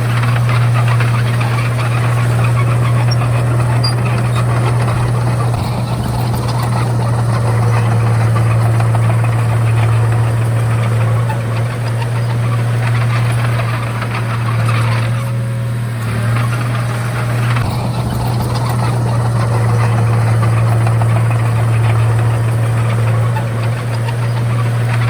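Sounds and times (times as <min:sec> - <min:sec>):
bulldozer diesel engine droning: 0:00.0 - 0:25.0.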